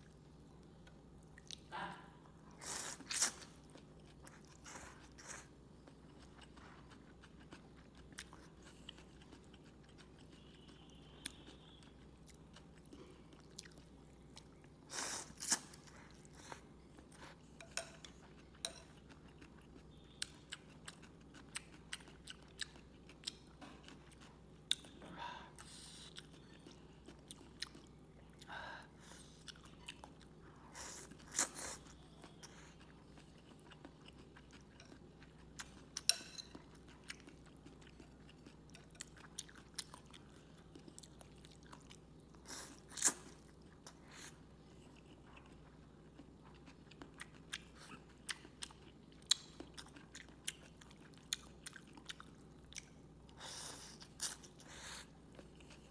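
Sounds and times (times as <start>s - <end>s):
person chewing noodles: 2.5s - 55.9s.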